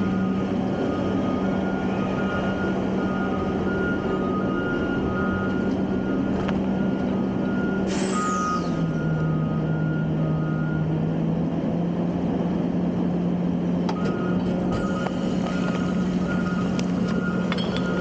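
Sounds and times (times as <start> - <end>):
reversing alarm beeping: 0.0 - 11.0, 13.9 - 18.0
diesel engine running: 0.0 - 18.0
air brake hiss: 7.8 - 8.8.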